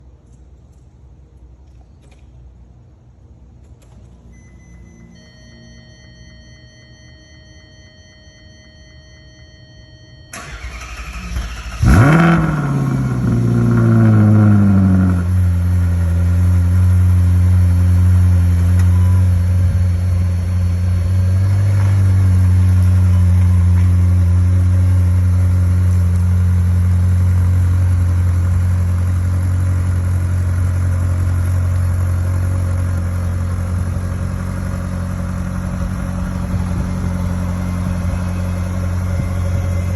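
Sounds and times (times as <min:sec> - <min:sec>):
car engine starting and idling: 0:00.0 - 0:39.9
faint steady tones: 0:04.0 - 0:11.8.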